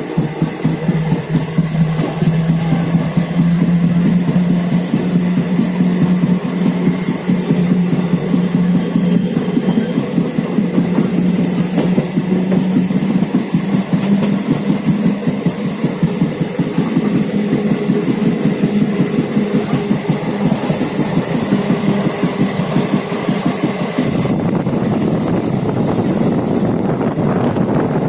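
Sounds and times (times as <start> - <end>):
train rumbling on track: 0.0 - 28.0.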